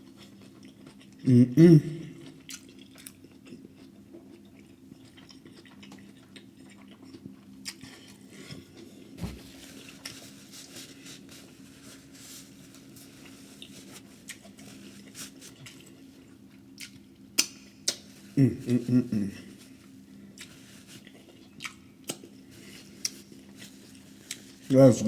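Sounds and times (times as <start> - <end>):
person chewing food: 0.1 - 1.2, 2.0 - 10.2, 11.5 - 24.6
wet mouth clicks and smacks: 16.8 - 18.0.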